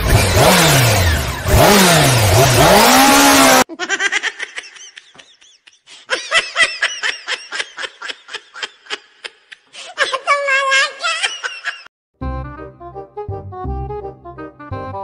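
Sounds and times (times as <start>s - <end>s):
engine-like revving: 0.0s - 3.7s
quick repeated laughter: 3.7s - 11.9s.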